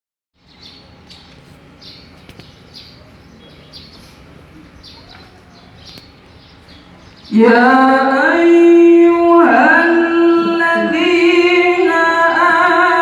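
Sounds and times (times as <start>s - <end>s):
small birds chirping: 0.4s - 8.1s.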